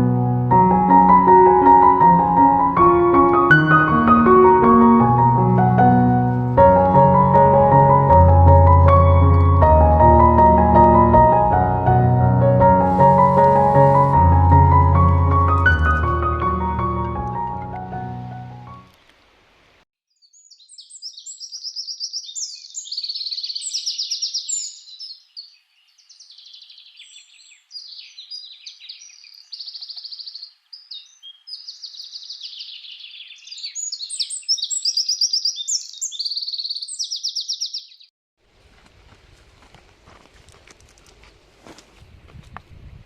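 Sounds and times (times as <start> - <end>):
songbirds trilling and chirping: 20.2 - 38.1.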